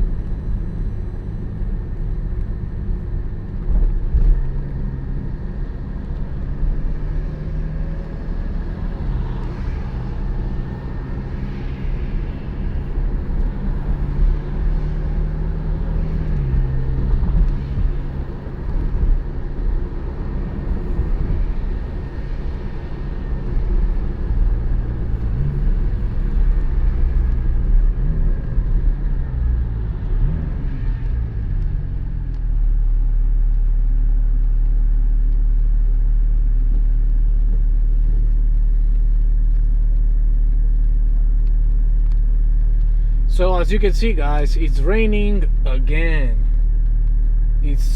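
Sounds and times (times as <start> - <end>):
car engine running: 42.1 - 47.9.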